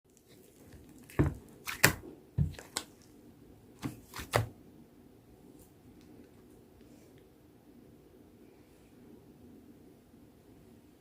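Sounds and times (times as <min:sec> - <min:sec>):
slime squished by hand: 0:00.2 - 0:03.1, 0:03.8 - 0:04.5.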